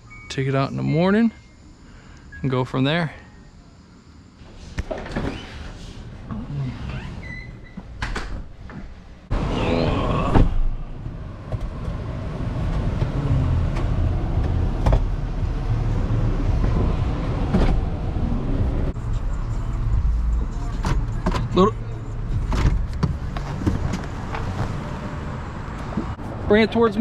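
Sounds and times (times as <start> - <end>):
vehicle engine rumbling: 8.5 - 27.0.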